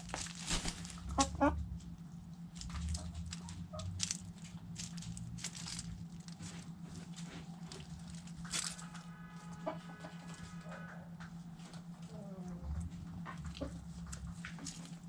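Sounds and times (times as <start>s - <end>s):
chickens pecking at food: 0.0s - 10.6s, 11.2s - 15.0s
low hum: 0.0s - 15.0s
chicken calling: 0.6s - 1.7s, 8.7s - 11.2s.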